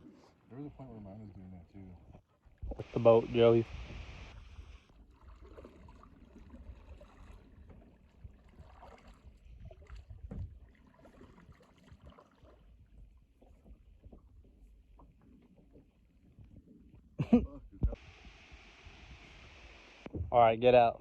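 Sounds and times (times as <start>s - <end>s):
water lapping: 2.2s - 17.2s.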